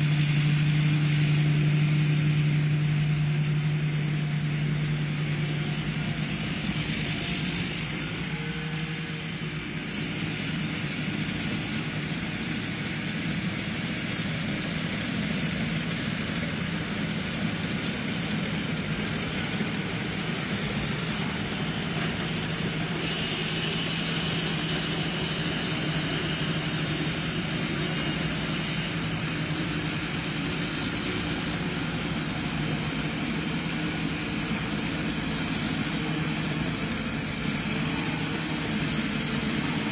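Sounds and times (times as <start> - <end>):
combine harvester machinery: 0.0 - 39.9
high mechanical whine: 0.0 - 39.9.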